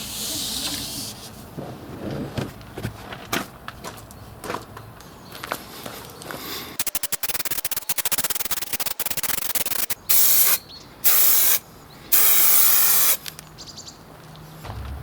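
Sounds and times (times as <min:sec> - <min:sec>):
aerosol can rattling: 0:06.8 - 0:11.6, 0:12.2 - 0:13.2
aerosol spray bursts: 0:06.8 - 0:13.2.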